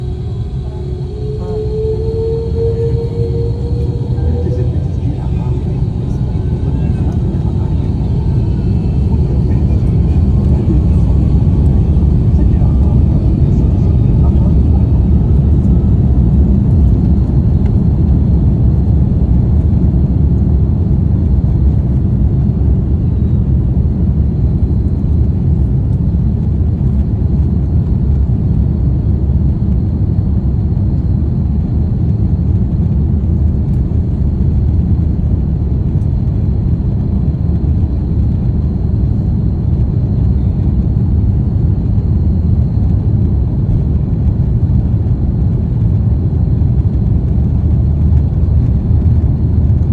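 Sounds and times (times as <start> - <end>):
faint high whine: 0.0 - 18.8
jet engines rumbling: 0.0 - 49.9.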